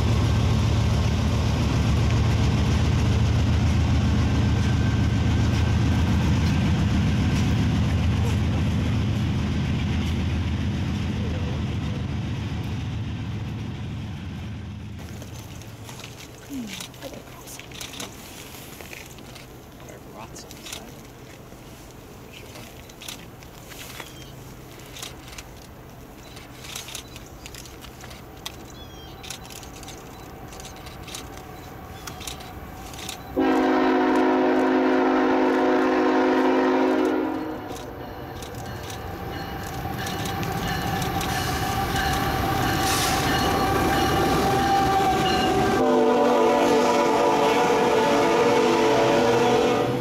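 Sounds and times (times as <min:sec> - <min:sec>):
train engines and wheels: 0:00.0 - 0:50.0
train horn chord: 0:33.4 - 0:37.7, 0:40.7 - 0:50.0.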